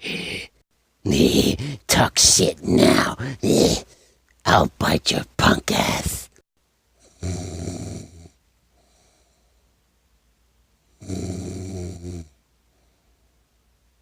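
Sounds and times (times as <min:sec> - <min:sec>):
faint breath: 0:03.9 - 0:04.3, 0:08.7 - 0:09.8, 0:12.6 - 0:13.4
loud snores: 0:07.0 - 0:08.4, 0:11.0 - 0:12.4.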